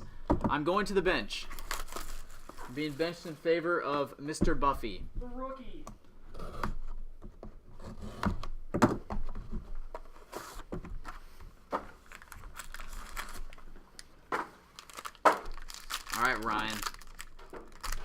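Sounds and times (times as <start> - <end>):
handling a box of cards: 1.4 - 4.1, 9.2 - 18.0.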